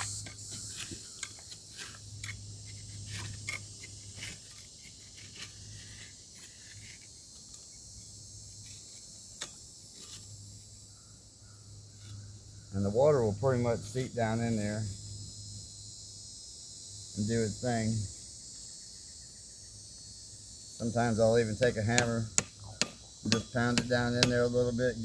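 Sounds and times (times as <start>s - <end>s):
hand tool scraping concrete: 0.0s - 7.7s, 23.3s - 25.0s
crickets chirring: 0.0s - 25.0s.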